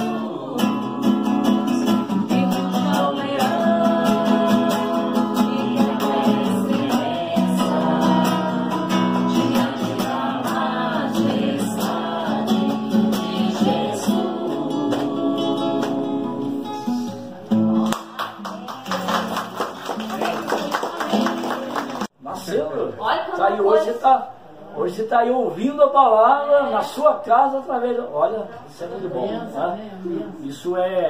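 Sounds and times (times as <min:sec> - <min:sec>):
person singing: 0:00.0 - 0:17.2
strummed acoustic guitar: 0:00.0 - 0:19.6.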